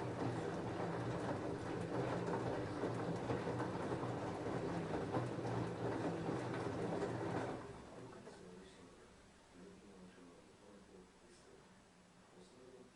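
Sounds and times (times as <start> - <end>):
washing machine motor hum: 0.0 - 8.6.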